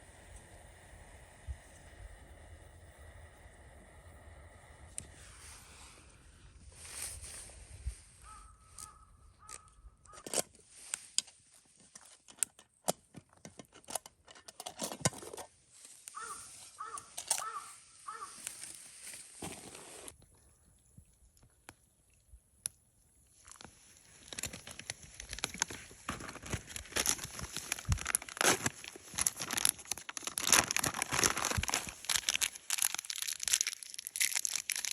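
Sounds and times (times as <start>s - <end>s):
handling clicks and knocks: 11.2s - 15.5s
crow cawing: 16.2s - 18.4s.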